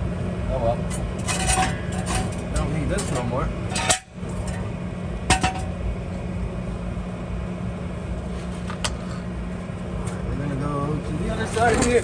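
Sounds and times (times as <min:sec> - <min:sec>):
steady low hum: 0:00.0 - 0:12.0
metal tools clinking: 0:00.9 - 0:04.6, 0:11.2 - 0:12.0.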